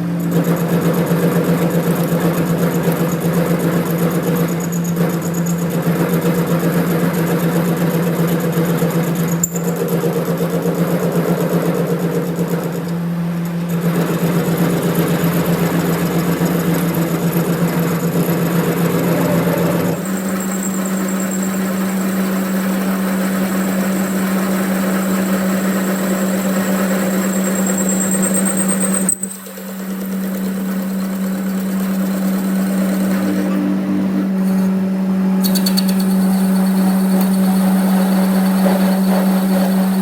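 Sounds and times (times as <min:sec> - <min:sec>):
machine grinding: 0:09.1 - 0:40.0
machine humming: 0:11.2 - 0:40.0.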